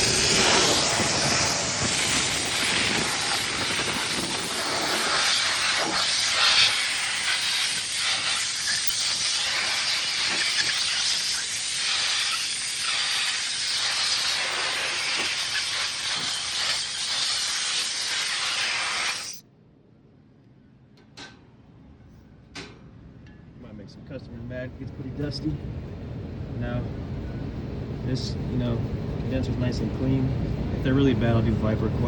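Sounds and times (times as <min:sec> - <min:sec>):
gas hissing through coil: 0:00.0 - 0:19.4.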